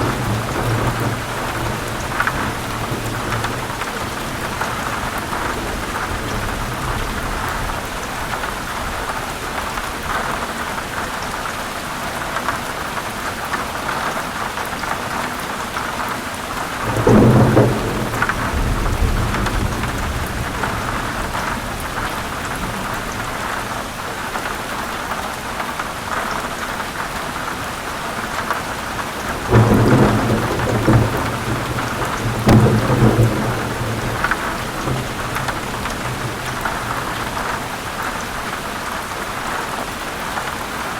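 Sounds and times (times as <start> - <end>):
thunder rolling: 0.0 - 9.0, 16.6 - 23.8, 28.9 - 38.6
heavy rain on leaves: 0.0 - 40.9.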